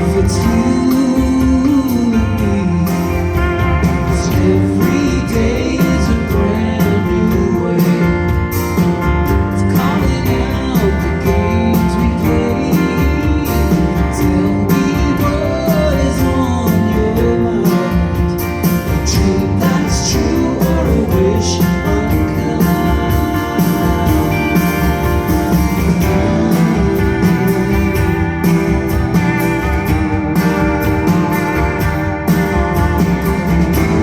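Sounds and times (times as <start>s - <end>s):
person singing: 0.0s - 24.8s, 25.7s - 28.6s, 33.5s - 34.0s
live band with guitars and drums: 0.0s - 34.0s.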